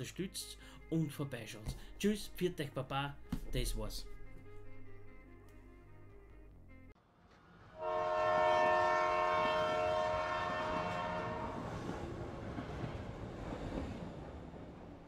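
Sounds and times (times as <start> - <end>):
rumble of passing train: 7.0 - 15.0
train horn: 7.6 - 11.9.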